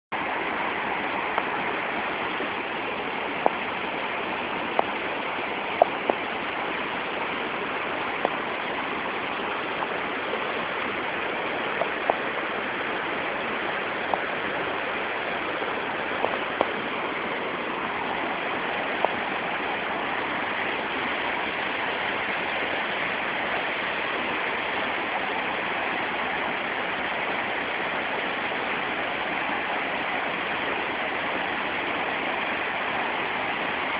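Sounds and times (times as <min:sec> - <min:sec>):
waterfall rushing: 0:00.2 - 0:33.9.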